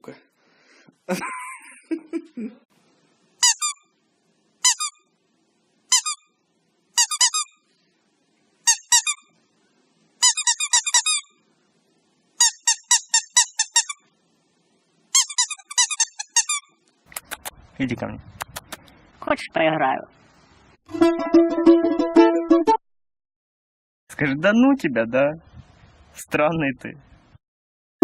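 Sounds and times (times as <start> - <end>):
squeaky dog toy squeaking: 3.4 - 3.9, 4.6 - 5.0, 5.9 - 6.3, 7.0 - 7.6, 8.7 - 9.3, 10.2 - 11.4, 12.4 - 14.0, 15.1 - 16.8.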